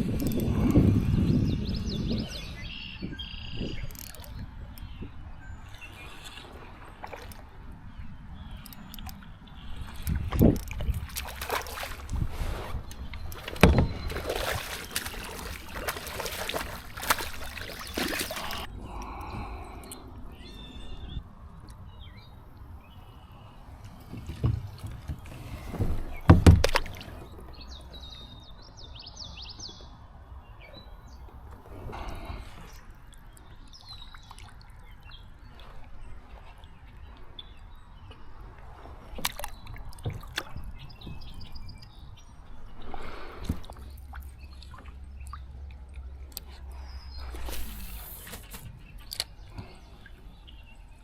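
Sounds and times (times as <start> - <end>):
birds chirping: 0.0 - 12.2, 12.8 - 38.5, 39.1 - 51.0
water splashing around kayak: 0.0 - 20.0, 23.7 - 28.1, 31.5 - 51.0
knocks against hull: 13.4 - 18.3, 24.1 - 27.0.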